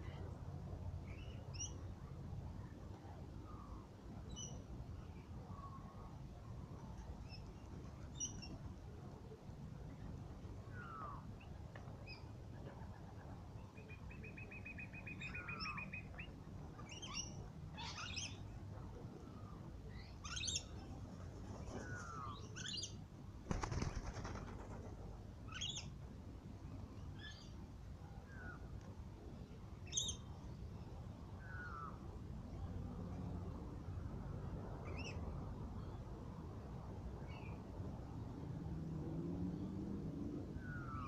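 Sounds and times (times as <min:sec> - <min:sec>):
wings fluttering: 0:23.5 - 0:25.2.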